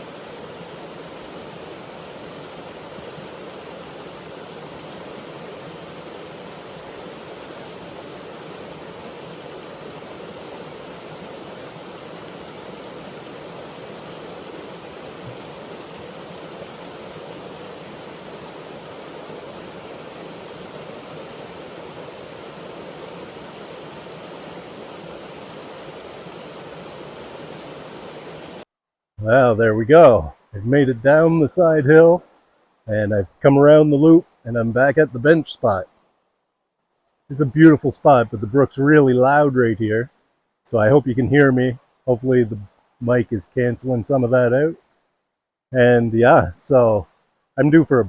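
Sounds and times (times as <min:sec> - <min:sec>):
brook running over rocks: 0:00.0 - 0:28.6.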